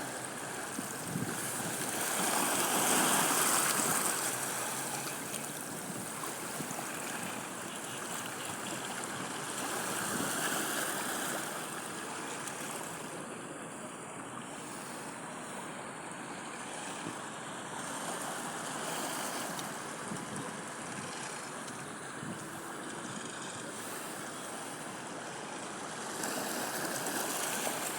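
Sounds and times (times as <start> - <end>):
sea waves washing onto beach: 0.0 - 27.9
wind noise on microphone: 0.6 - 4.2, 20.0 - 21.5, 22.1 - 23.6.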